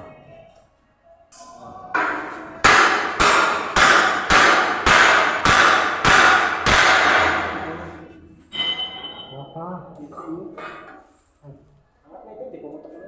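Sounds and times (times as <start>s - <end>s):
hammer striking metal: 2.0s - 9.5s.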